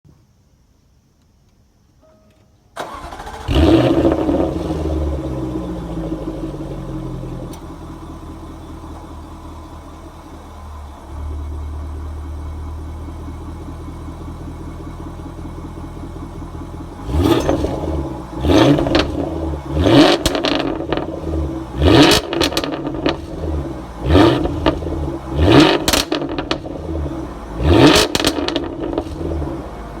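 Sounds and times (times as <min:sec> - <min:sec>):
car engine starting and idling: 0:02.7 - 0:30.0
car engine free revs: 0:02.8 - 0:08.9, 0:15.9 - 0:30.0.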